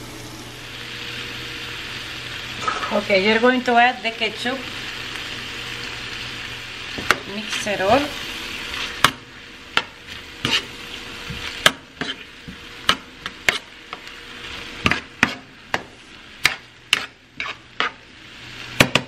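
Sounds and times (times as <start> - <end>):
light sizzle from pan: 0.0 - 19.0
spoon scraping frying pan: 9.8 - 10.8, 11.5 - 18.1.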